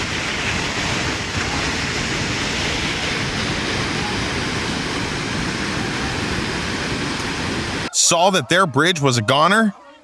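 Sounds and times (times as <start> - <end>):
floodwater rushing: 0.0 - 9.6.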